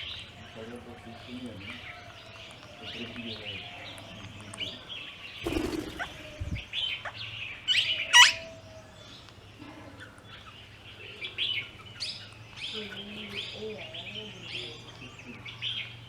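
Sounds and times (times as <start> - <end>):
small birds chirping: 0.0 - 16.0
loud shrill bird call: 5.5 - 6.5.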